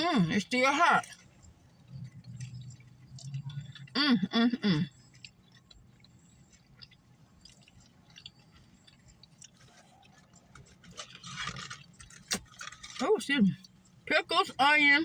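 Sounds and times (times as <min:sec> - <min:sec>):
person chewing food: 0:01.0 - 0:12.8.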